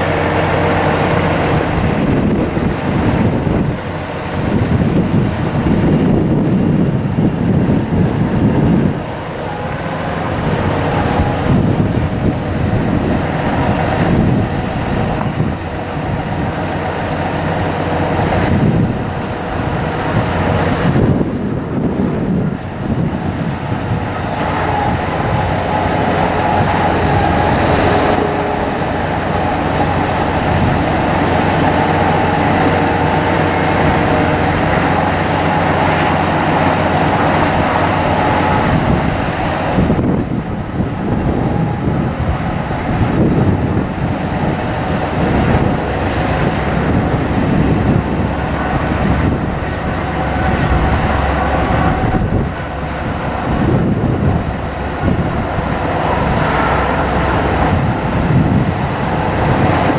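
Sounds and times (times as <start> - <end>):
hydraulic pump whine: 0.0 - 59.9
truck engine rumble: 0.0 - 59.9.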